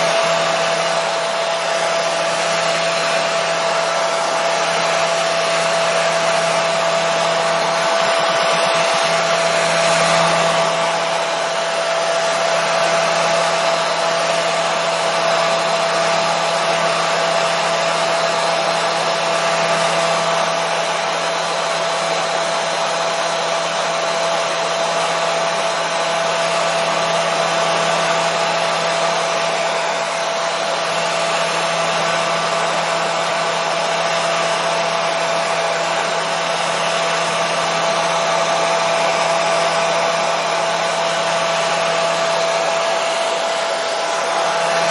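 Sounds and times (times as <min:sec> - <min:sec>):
hair dryer running: 0:00.0 - 0:44.9.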